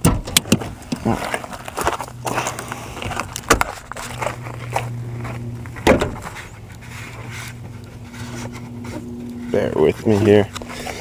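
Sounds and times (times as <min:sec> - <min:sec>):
clicks and knocks on vehicle: 0:00.0 - 0:01.1
steady low hum: 0:00.0 - 0:11.0.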